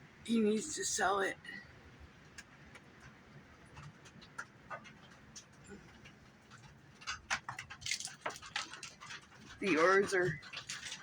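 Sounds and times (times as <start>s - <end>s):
light clicks and taps: 2.2s - 11.0s.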